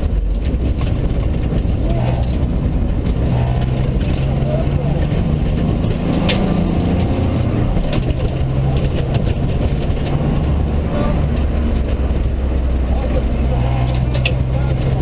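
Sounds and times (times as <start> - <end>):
rally car engine running hard: 0.0 - 15.0
sharp clicks: 0.4 - 10.2, 13.8 - 15.0.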